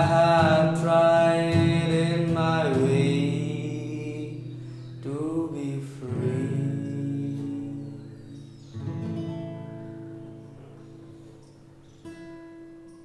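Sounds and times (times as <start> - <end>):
person singing long wordless notes: 0.0 - 8.5.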